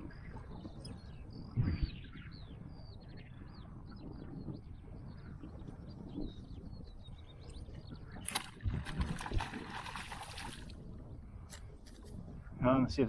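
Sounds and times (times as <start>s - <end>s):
water sloshing: 8.3s - 10.8s
water splashing: 8.3s - 10.8s.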